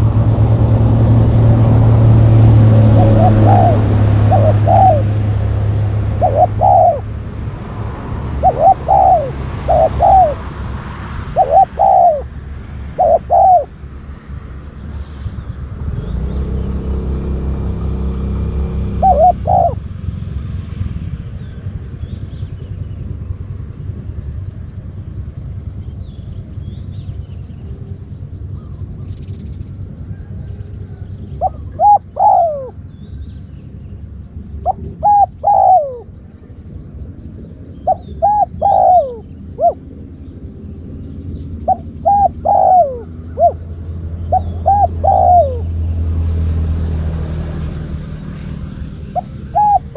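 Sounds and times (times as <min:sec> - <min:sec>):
steady low rumble: 0:00.0 - 0:49.9
dove cooing: 0:02.6 - 0:07.2, 0:08.2 - 0:10.6, 0:11.3 - 0:13.8, 0:17.9 - 0:19.9, 0:30.1 - 0:32.9, 0:34.6 - 0:36.2, 0:37.1 - 0:40.2, 0:41.6 - 0:45.8, 0:48.8 - 0:49.9.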